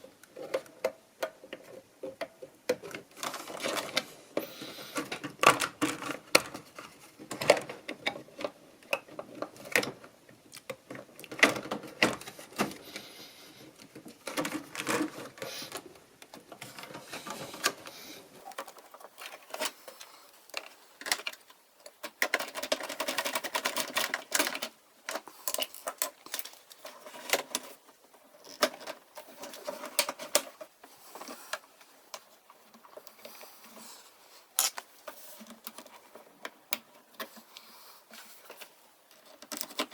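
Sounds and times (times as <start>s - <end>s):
tools and parts clattering: 18.4s - 33.8s, 38.2s - 39.9s.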